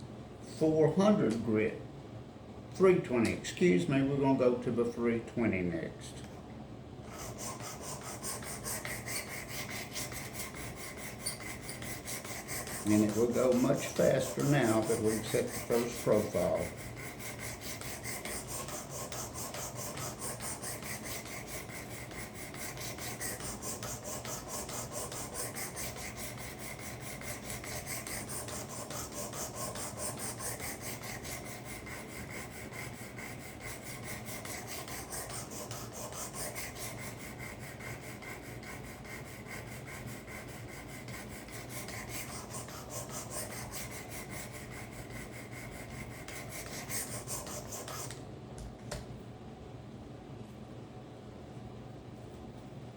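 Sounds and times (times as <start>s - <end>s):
sharpener rasping along blade: 7.2s - 48.2s.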